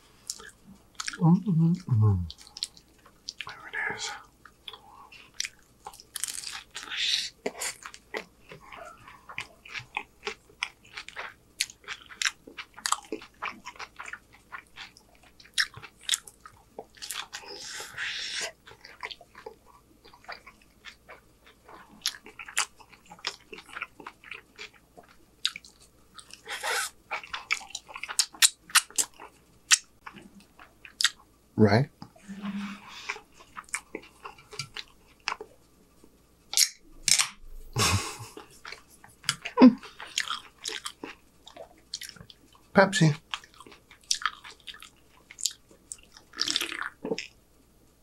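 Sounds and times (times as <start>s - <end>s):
chewing with wet mouth smacks: 4.4s - 31.2s, 38.4s - 42.6s, 43.2s - 47.4s.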